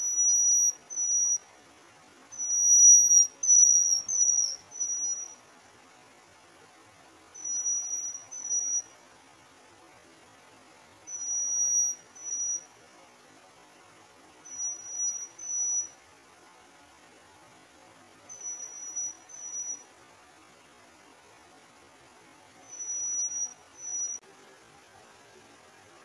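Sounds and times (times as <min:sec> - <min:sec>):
bird high-pitched whistled calls: 0:00.0 - 0:01.5, 0:02.3 - 0:05.4, 0:07.4 - 0:09.0, 0:11.1 - 0:12.7, 0:14.4 - 0:16.0, 0:18.3 - 0:19.9, 0:22.6 - 0:24.2.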